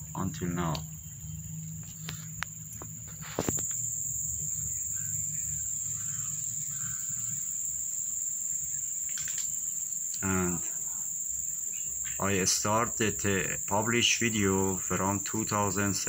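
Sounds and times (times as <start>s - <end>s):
crickets trilling: 0.0s - 16.0s
light clicks: 9.0s - 10.2s.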